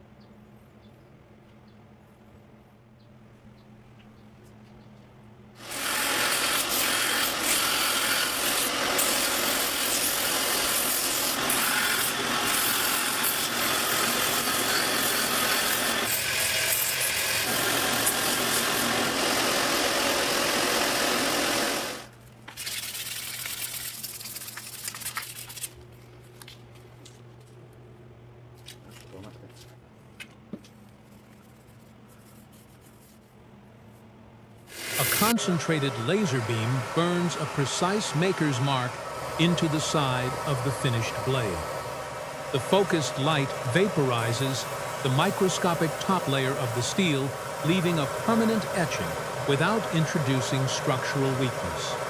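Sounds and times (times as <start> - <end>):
harsh abrasive grinding: 5.6 - 22.1, 34.7 - 52.0.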